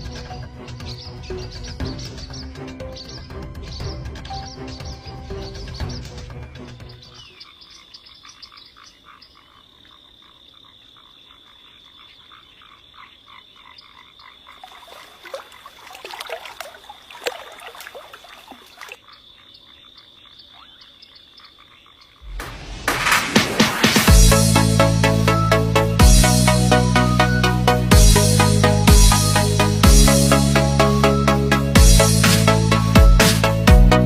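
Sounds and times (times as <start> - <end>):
music: 0.0 - 7.2, 22.4 - 34.0
frogs croaking: 6.9 - 22.3.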